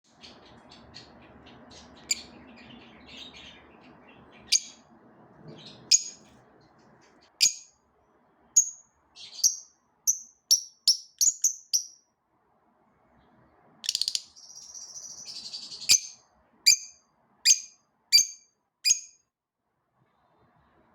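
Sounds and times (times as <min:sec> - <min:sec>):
parrots chirping: 0:00.2 - 0:04.8, 0:05.6 - 0:06.3, 0:07.3 - 0:07.7, 0:08.6 - 0:12.0, 0:13.8 - 0:19.2.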